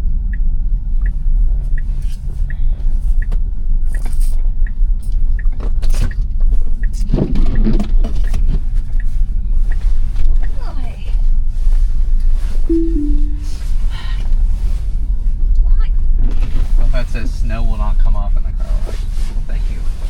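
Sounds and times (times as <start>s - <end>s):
road and tyre rumble: 0.0s - 12.6s.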